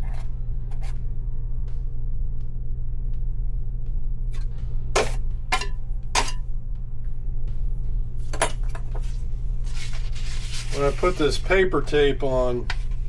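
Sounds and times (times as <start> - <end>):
steady low hum: 0.0 - 13.0
taping knife scraping drywall: 9.9 - 11.2.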